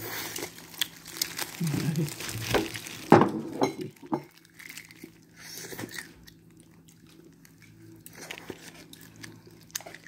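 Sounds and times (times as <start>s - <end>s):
chewing: 4.3s - 10.0s.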